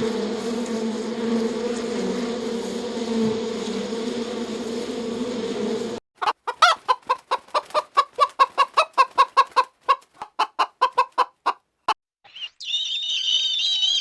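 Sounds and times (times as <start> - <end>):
chicken clucking: 6.2 - 12.0.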